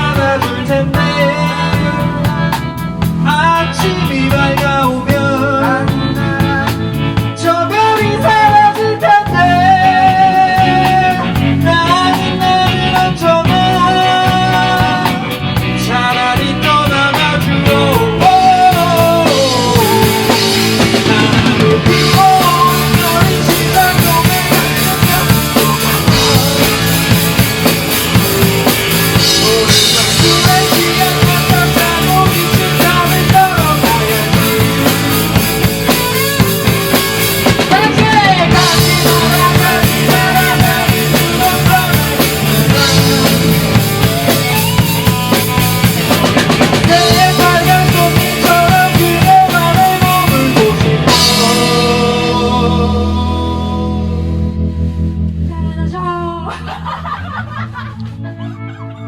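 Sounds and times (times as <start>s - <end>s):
rock band playing: 0.0s - 59.0s.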